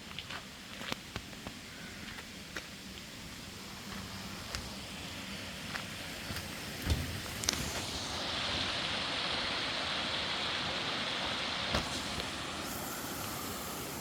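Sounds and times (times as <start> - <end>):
stream water flowing: 2.4 - 14.0
dull thump: 6.8 - 7.3.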